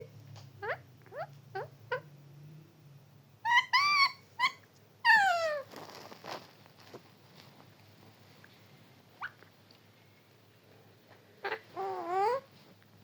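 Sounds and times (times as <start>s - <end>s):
parrot calling: 0.6s - 2.1s, 3.4s - 5.7s, 11.4s - 12.5s.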